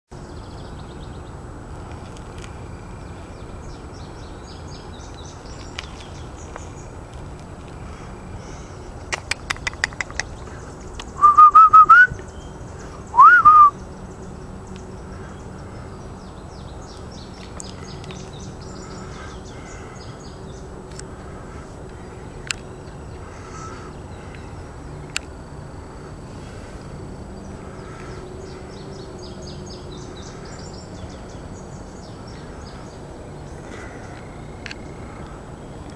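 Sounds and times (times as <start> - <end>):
faint birdsong: 0.1 - 35.9
steady outdoor background: 0.1 - 35.9
harsh bird calls: 7.8 - 35.8.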